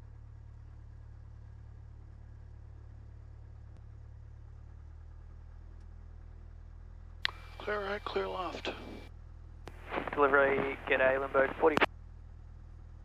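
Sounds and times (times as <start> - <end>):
faint low drone: 0.0 - 13.0.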